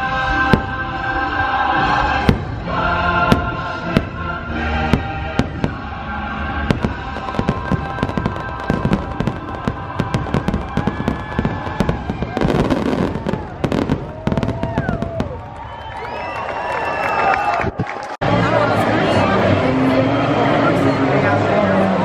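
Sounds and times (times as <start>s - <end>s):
fireworks banging: 0.3s - 1.2s, 1.8s - 16.1s.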